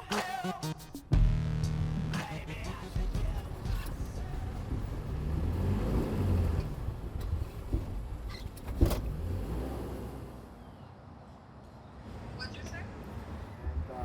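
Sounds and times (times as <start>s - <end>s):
vehicle driving past: 3.8s - 7.0s.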